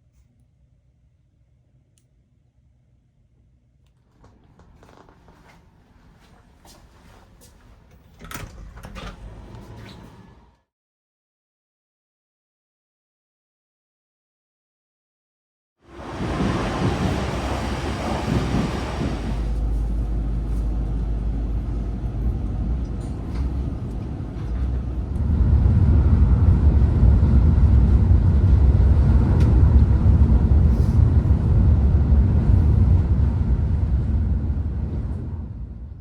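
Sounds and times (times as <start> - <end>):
train rumbling: 4.1 - 10.6, 15.9 - 36.0.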